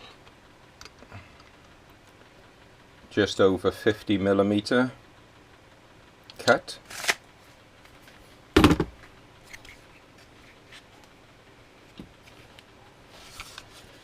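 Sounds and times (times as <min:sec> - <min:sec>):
loud knock: 0:08.6 - 0:09.0
soft rustle: 0:11.8 - 0:14.0.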